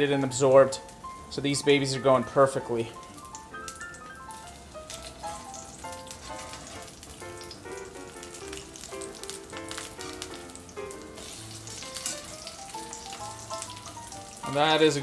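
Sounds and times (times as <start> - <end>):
light plinking background music: 0.0 - 15.0
eggplant sizzling in oil: 0.6 - 15.0
metal spatula turning slices: 4.3 - 15.0.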